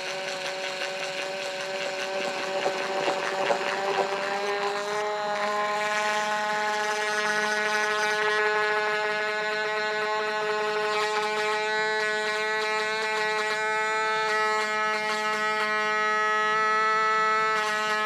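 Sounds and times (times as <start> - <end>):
power drill motor whining: 0.0 - 7.2.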